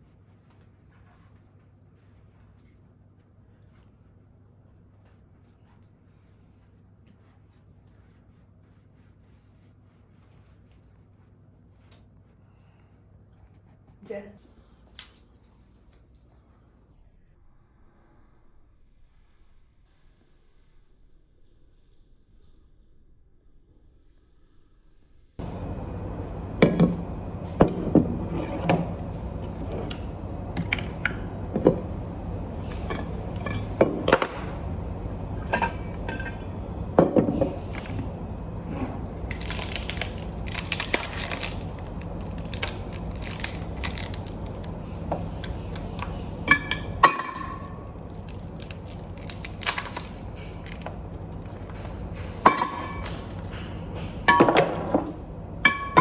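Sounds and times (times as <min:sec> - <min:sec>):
steady low hum: 0:21.2 - 0:56.0
sharp clinks and knocks: 0:26.4 - 0:38.2.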